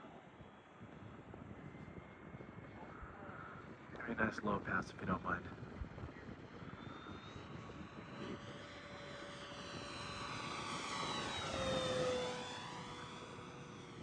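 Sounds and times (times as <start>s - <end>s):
rc plane motor whining by: 6.0s - 14.0s.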